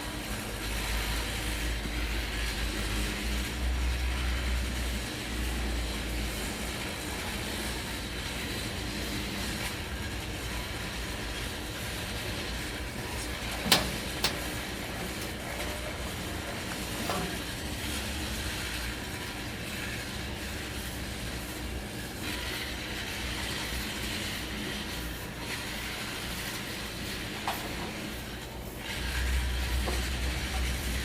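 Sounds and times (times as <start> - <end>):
low machinery rumble: 10.6 - 21.9.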